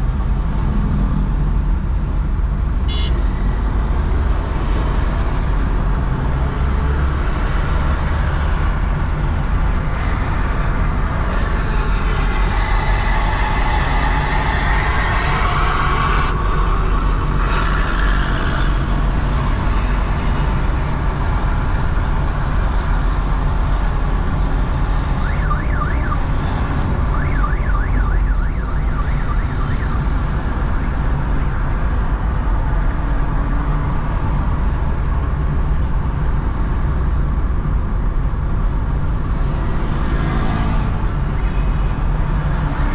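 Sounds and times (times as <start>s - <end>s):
road traffic rumble: 0.0s - 42.9s
siren wailing: 25.1s - 30.3s.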